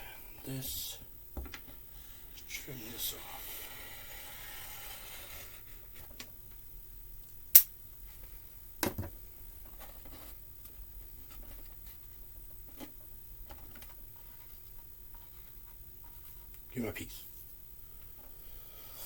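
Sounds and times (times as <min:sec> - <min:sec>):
sharp loud click: 0:07.5 - 0:07.7.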